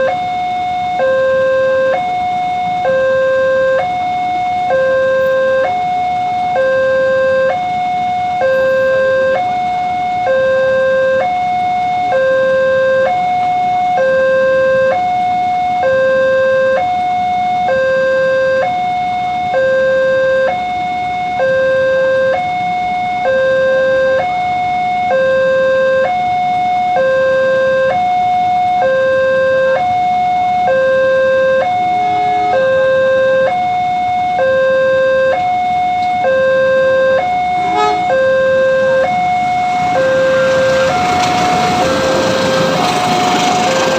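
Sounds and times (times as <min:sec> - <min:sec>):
two-tone level crossing alarm: 0:00.0 - 0:43.9.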